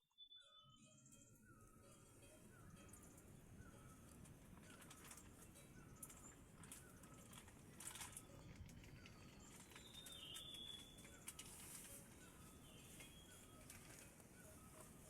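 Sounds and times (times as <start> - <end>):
distant bird chirps: 0.2 - 15.0
whistled bird notes: 8.2 - 15.0.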